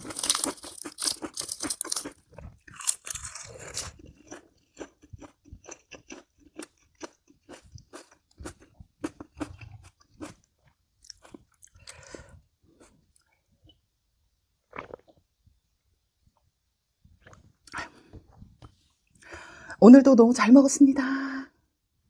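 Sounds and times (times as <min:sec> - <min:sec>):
crunchy food chewing: 0:00.0 - 0:13.4, 0:14.7 - 0:15.2.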